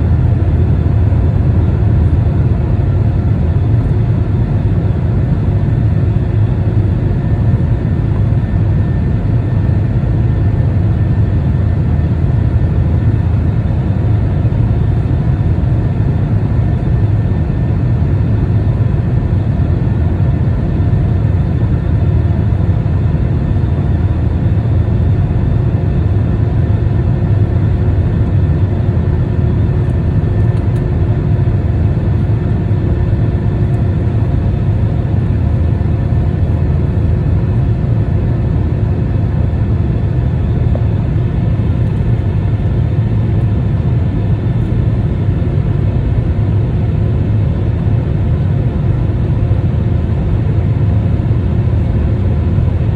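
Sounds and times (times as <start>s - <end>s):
airliner engine rumble: 0.0s - 52.9s
faint constant drone: 0.0s - 52.9s.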